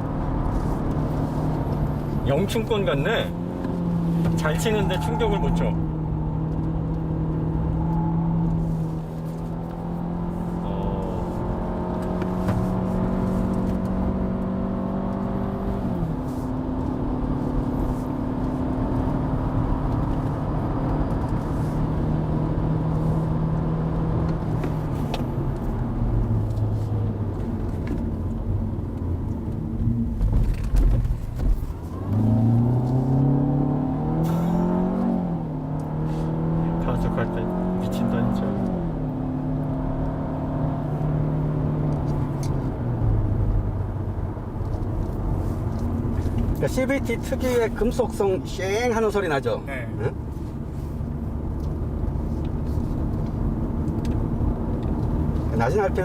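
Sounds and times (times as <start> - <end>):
car engine under hard driving: 0.0 - 56.0
road rumble: 0.0 - 56.0.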